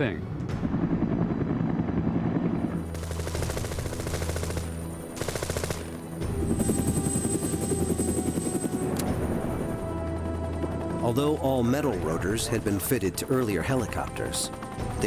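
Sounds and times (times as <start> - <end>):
helicopter drone: 0.0 - 15.0
rapid machine-gun fire: 2.9 - 6.0.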